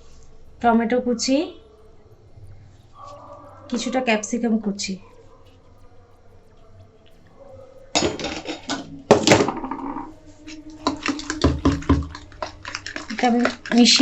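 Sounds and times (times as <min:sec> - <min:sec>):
utensil clinking against a bowl: 0:08.0 - 0:14.0
utensil scraping a bowl: 0:08.0 - 0:14.0.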